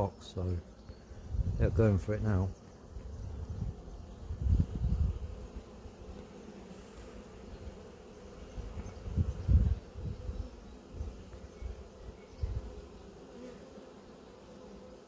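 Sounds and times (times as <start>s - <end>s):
bee swarm buzzing: 0.0s - 15.0s.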